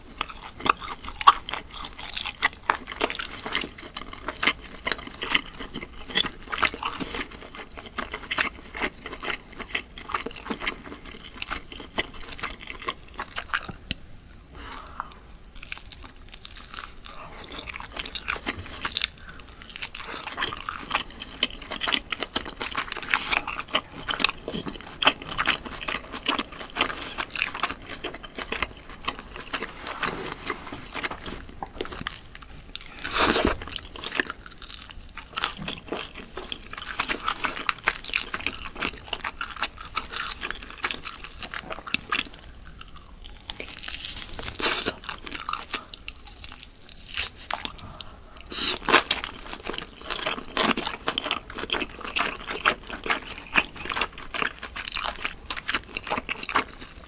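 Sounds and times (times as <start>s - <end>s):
wet crackly chewing: 0.2s - 57.0s
loud crunches: 25.4s - 36.2s.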